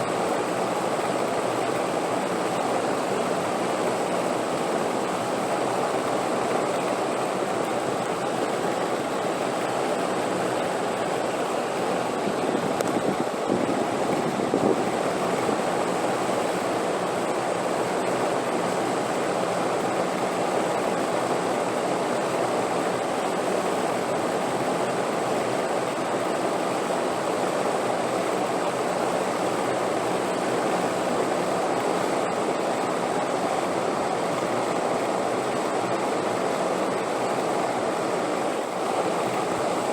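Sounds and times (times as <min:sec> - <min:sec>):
rushing wind: 0:06.8 - 0:19.2.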